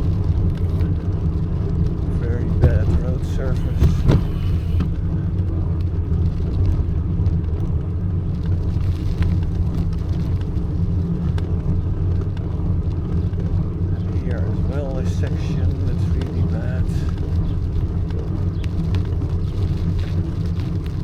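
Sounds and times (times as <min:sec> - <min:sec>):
faint rattles: 0:00.0 - 0:05.2
bicycle rumbling over rough road: 0:00.0 - 0:21.0
air noise: 0:02.1 - 0:05.0.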